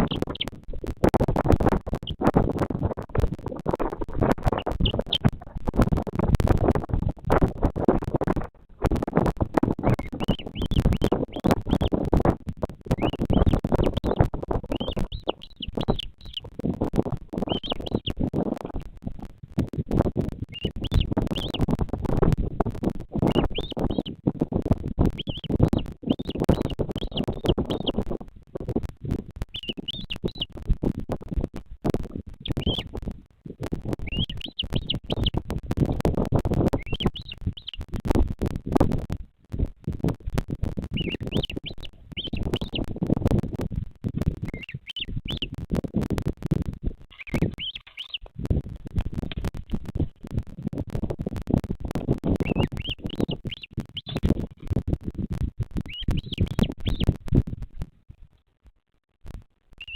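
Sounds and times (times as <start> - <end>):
loud low rumble with crackles: 0.0 - 59.9
high chirping bird calls: 13.0 - 16.4, 17.4 - 18.1, 20.5 - 21.6, 32.6 - 32.8, 41.0 - 42.8, 47.1 - 48.3, 55.9 - 57.0.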